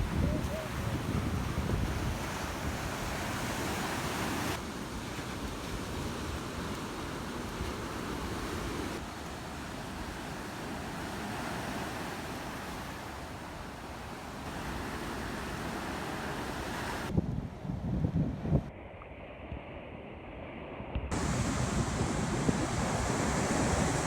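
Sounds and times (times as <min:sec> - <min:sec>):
wind on microphone: 0:00.0 - 0:04.6, 0:14.5 - 0:24.0
sea waves washing on shore: 0:00.0 - 0:17.2, 0:21.1 - 0:24.0.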